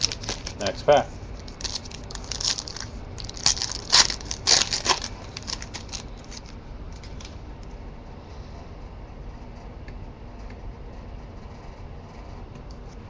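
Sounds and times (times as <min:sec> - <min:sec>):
plastic wrapper crinkling and tearing: 0:00.0 - 0:07.4.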